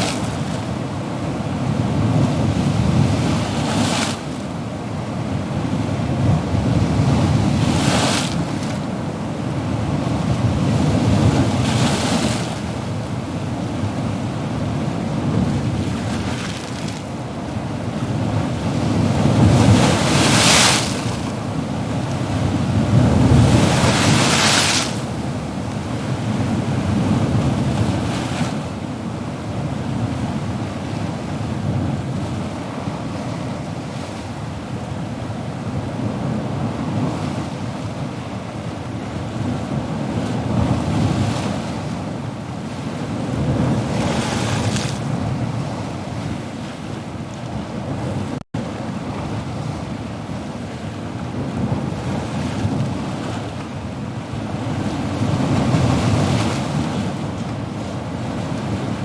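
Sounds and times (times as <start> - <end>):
waves rushing: 0.0 - 5.6, 6.2 - 9.1, 14.6 - 28.8, 42.8 - 47.2
waves breaking and hissing: 22.7 - 25.4, 43.8 - 45.2.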